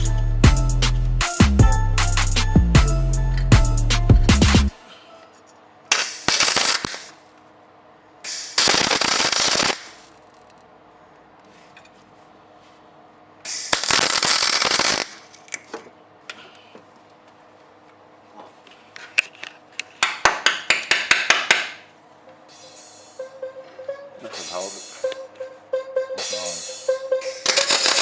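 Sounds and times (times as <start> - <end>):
music: 0.0 - 4.8, 22.6 - 28.0
crackling tack welds: 5.9 - 7.2, 8.3 - 10.6, 13.5 - 15.3.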